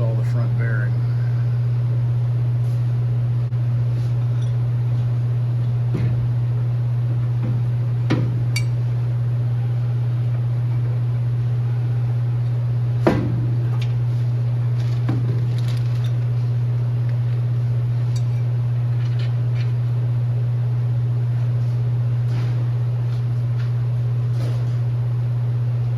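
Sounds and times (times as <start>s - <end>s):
steady low hum: 0.0s - 25.9s
metal ringing ping: 8.5s - 8.8s.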